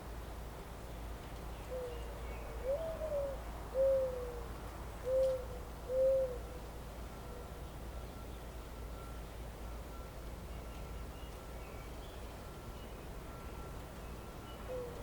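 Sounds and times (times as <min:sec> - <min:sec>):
low background hum: 0:00.0 - 0:15.0
bird hooting: 0:02.6 - 0:06.6, 0:14.7 - 0:15.0.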